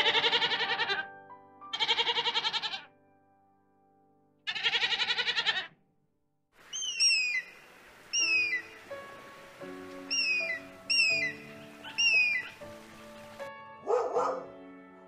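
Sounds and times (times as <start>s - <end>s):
goat bleating: 0.0s - 1.1s, 1.7s - 2.9s, 4.5s - 5.7s
hawk call: 10.1s - 12.6s.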